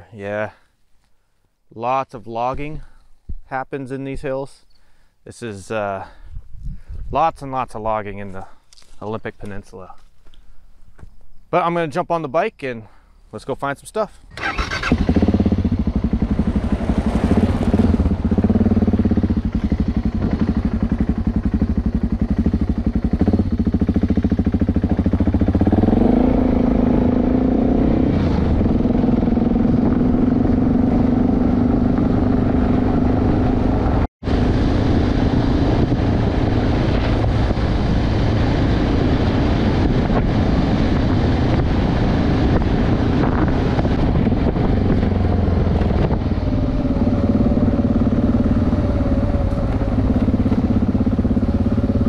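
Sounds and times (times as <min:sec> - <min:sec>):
tyres on gravel road: 0:08.2 - 0:11.5, 0:12.8 - 0:26.2, 0:34.4 - 0:52.0
motorcycle engine running: 0:14.3 - 0:52.0.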